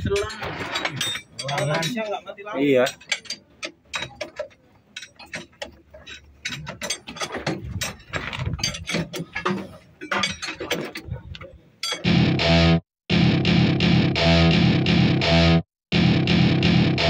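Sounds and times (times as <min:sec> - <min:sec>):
metal tools clicking and clanking: 0:00.0 - 0:12.1
loud guitar music: 0:12.0 - 0:17.0.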